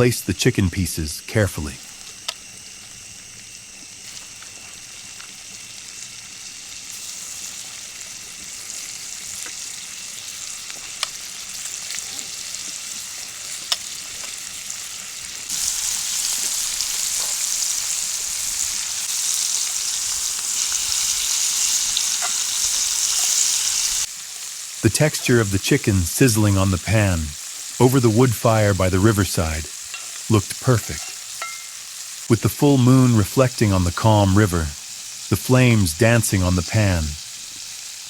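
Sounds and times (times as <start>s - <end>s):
chicken sizzling in pan: 0.4s - 38.0s.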